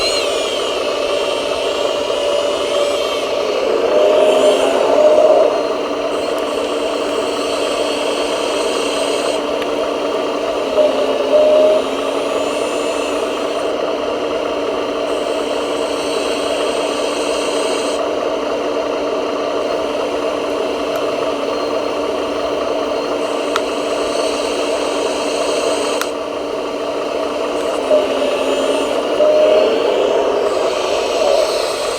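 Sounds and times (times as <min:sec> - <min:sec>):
high-pitched squeal: 0:00.0 - 0:18.0, 0:26.7 - 0:31.9
mechanical whir of models: 0:00.0 - 0:31.9.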